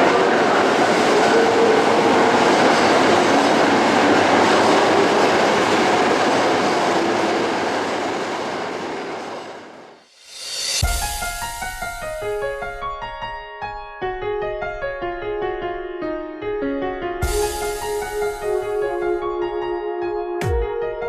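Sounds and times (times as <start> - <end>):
electric train running on rails: 0.0 - 10.8, 17.3 - 19.6.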